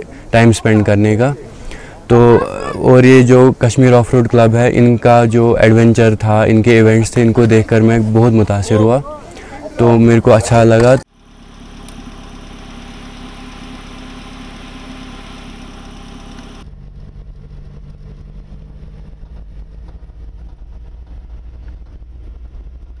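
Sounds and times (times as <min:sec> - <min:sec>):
constant hiss: 0:00.0 - 0:16.6
car engine running: 0:10.5 - 0:23.0
uneven engine rumble inside cabin: 0:11.2 - 0:23.0.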